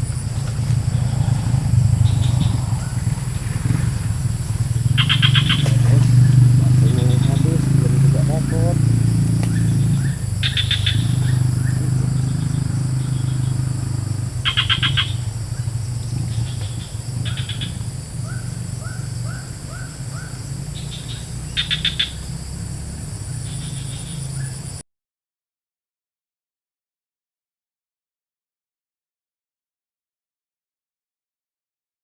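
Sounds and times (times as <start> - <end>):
birds trilling and chirping: 0.0 - 24.8
low engine hum: 0.0 - 24.8.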